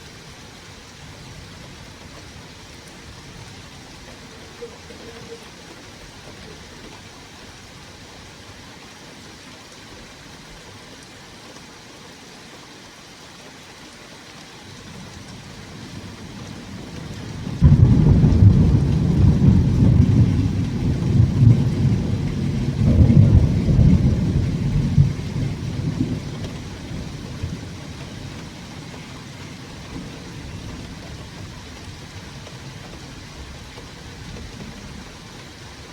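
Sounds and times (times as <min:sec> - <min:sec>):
steady rain: 0:00.0 - 0:35.9
thunder rumbling and clapping: 0:15.3 - 0:33.0.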